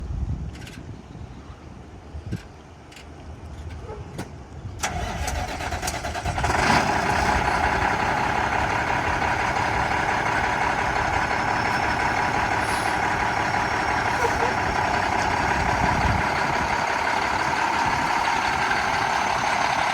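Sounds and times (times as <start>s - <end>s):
diesel engine idling: 4.8s - 19.9s
starter motor cranking: 4.8s - 19.9s.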